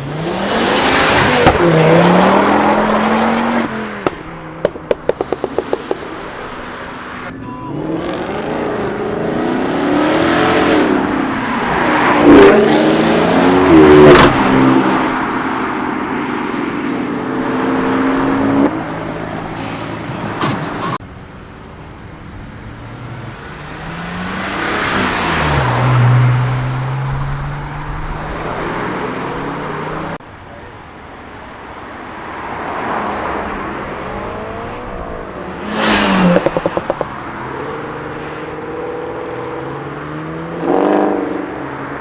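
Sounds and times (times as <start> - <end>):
cars accelerating past: 0.0 - 21.0, 22.6 - 30.2, 32.3 - 42.0.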